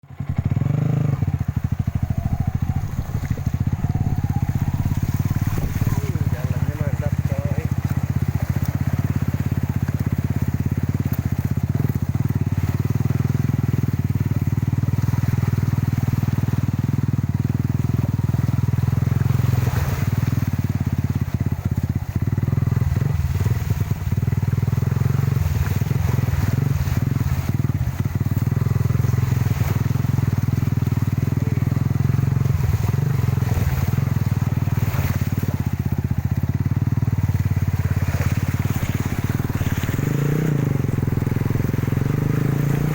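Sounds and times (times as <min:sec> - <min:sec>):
truck engine droning under load: 0:00.0 - 0:12.0, 0:25.0 - 0:42.9.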